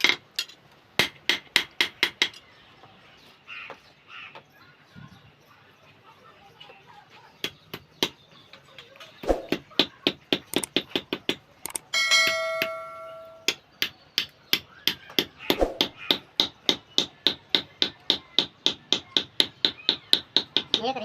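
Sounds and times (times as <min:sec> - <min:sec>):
metal ringing: 0:11.9 - 0:13.5
hammer striking metal: 0:12.0 - 0:17.6.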